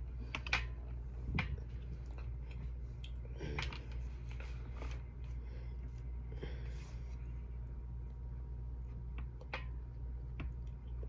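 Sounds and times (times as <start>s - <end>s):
steady low hum: 0.0s - 11.0s
person chewing with wet mouth noises: 0.8s - 4.3s.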